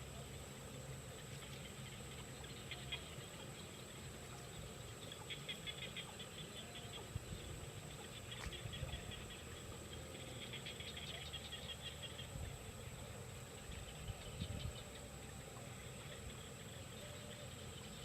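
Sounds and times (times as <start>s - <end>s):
faint high whine: 0.0s - 18.0s.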